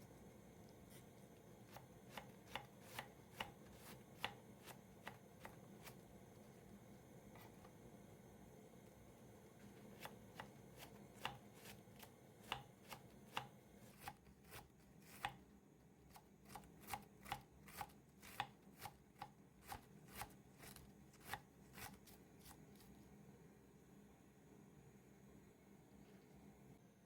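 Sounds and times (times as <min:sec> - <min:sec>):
knife chopping on cutting board: 0:01.6 - 0:06.0, 0:10.0 - 0:15.4, 0:16.1 - 0:22.1.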